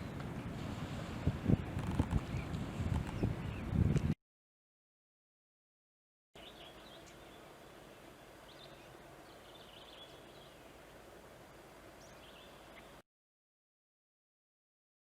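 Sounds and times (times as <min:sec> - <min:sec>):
bird chirping: 0:06.4 - 0:13.0
faint outdoor background: 0:06.4 - 0:13.0.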